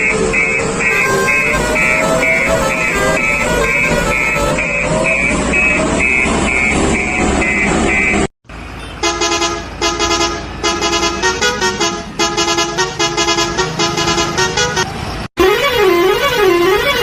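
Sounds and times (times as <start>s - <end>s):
regular beeping: 0.0s - 8.3s
vehicle engine noise: 0.0s - 17.0s
vehicle horn honking tune: 0.4s - 4.7s, 8.8s - 17.0s.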